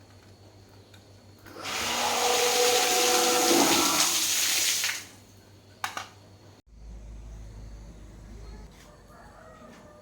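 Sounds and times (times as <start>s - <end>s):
pump motor hum: 1.4s - 5.1s.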